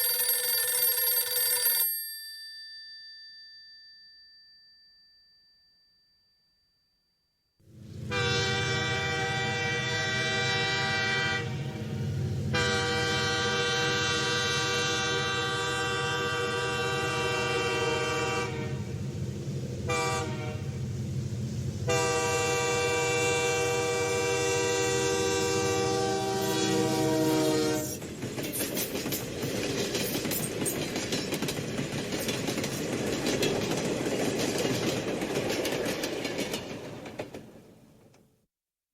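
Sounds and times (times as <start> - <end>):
train horn blasts: 7.9 - 19.0, 19.8 - 20.8, 21.8 - 28.0
train wheels clattering on rails: 27.8 - 38.2.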